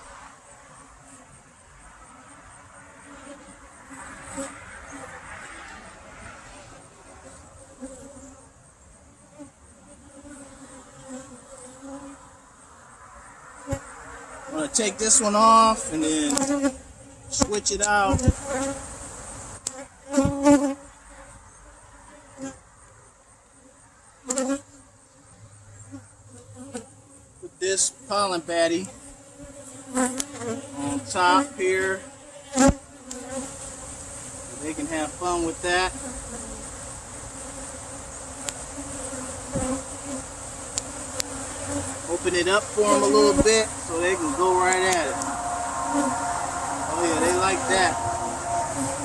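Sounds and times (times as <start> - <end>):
honey bees buzzing: 0.0 - 49.0
light clicks from hive handling: 16.3 - 16.5, 40.7 - 41.3.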